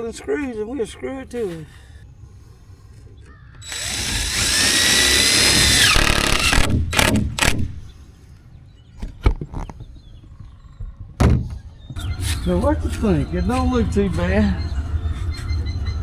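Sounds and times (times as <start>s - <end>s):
power drill motor whining: 3.6s - 7.8s.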